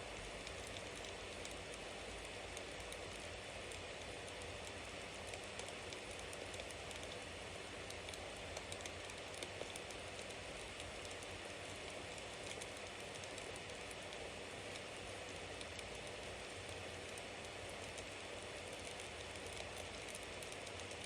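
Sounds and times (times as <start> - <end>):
campfire crackling: 0.1 - 14.2.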